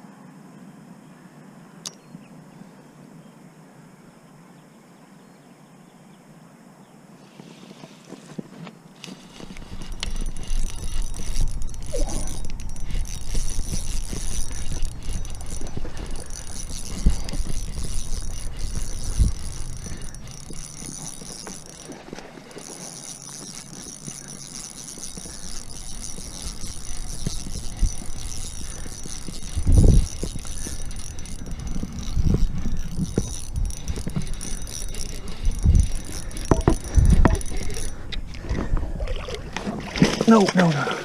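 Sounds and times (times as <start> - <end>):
fishing reel whirring: 9.0 - 41.0.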